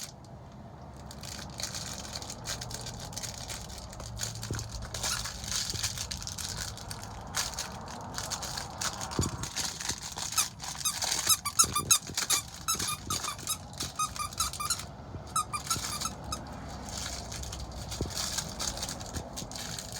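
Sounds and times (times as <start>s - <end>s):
squeaky dog toy squeaking: 4.9s - 5.8s, 9.2s - 18.8s.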